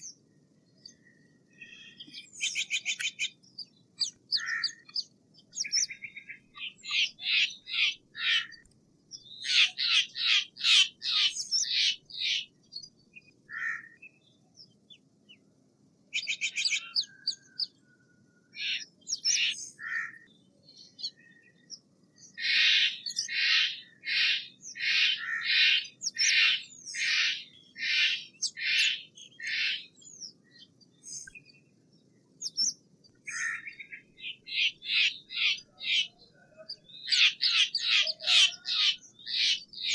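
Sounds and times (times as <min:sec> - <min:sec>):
jay calling: 0:04.3 - 0:04.9, 0:09.4 - 0:12.4, 0:37.1 - 0:39.9.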